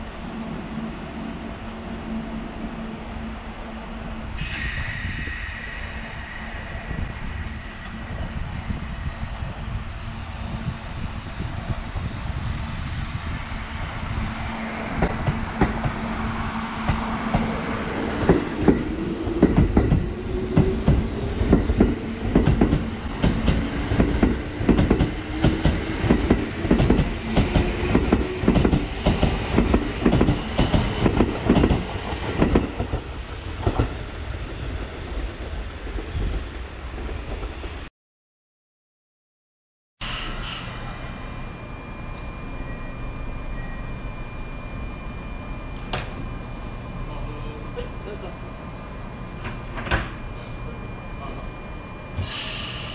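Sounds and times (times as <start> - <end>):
train motor hum rising: 4.3 - 31.2.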